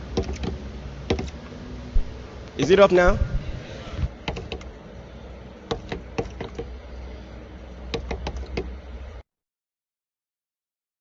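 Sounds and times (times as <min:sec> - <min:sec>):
bird tapping on glass: 0:00.2 - 0:01.4, 0:04.2 - 0:04.7, 0:05.7 - 0:06.8, 0:07.9 - 0:08.7.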